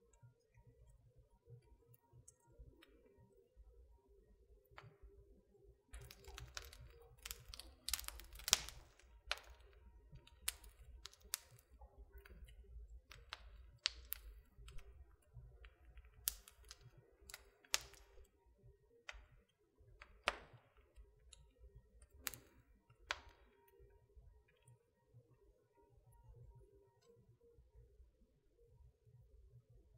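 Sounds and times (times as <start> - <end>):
faint low rumble of burning logs: 0.0 - 29.9
wood fire crackling and popping: 6.0 - 18.3, 19.1 - 21.4, 22.0 - 23.6.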